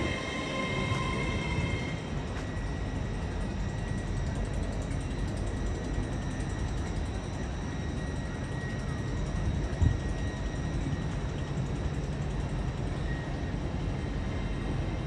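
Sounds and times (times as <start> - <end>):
faint high whine: 0.0 - 4.4
low rumble of trains: 0.0 - 15.0.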